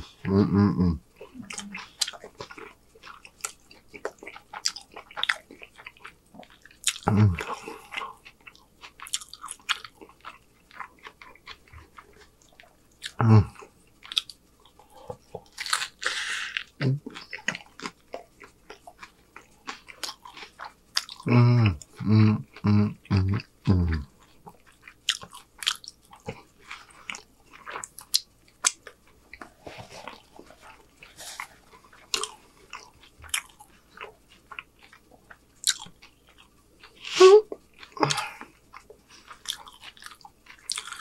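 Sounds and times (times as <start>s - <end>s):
man humming with enjoyment: 0.2s - 1.6s, 7.1s - 7.4s, 21.3s - 24.0s
wet chewing and lip-smacking: 1.2s - 22.6s, 23.3s - 41.0s.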